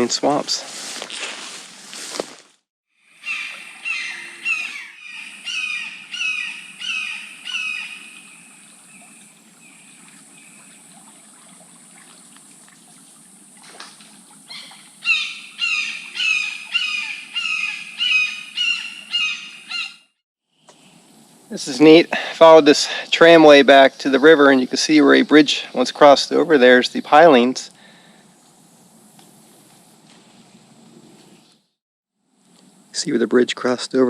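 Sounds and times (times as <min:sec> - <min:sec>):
bird calling harsh notes: 0:03.1 - 0:08.7, 0:14.5 - 0:20.1.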